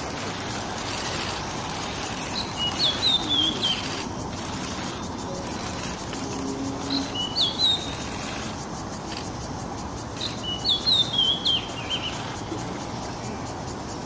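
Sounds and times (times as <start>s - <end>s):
background hiss: 0.0s - 14.0s
bird whistled chirps: 2.4s - 4.0s, 6.9s - 8.0s, 10.2s - 12.3s.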